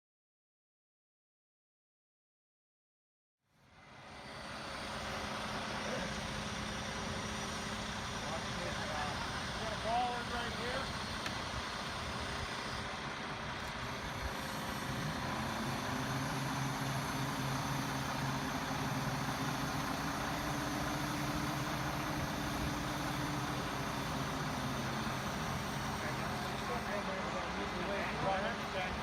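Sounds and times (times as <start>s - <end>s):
truck engine running: 3.8s - 29.0s.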